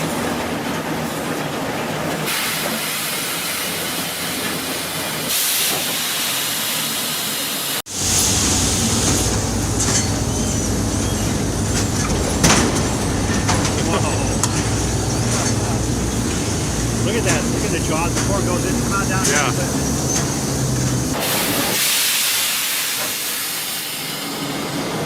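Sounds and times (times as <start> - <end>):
machinery clatter and hiss: 0.0 - 25.0
low machinery rumble: 8.0 - 21.2
machinery knocks: 11.6 - 16.4.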